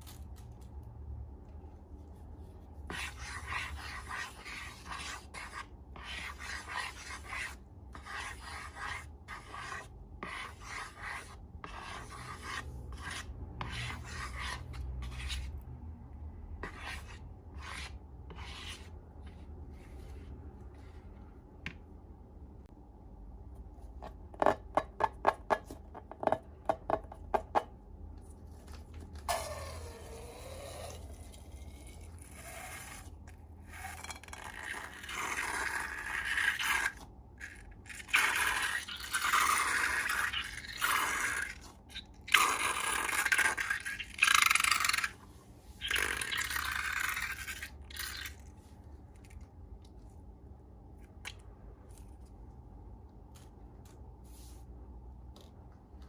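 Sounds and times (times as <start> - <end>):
scraping and rubbing: 16.6 - 21.3, 28.3 - 41.7.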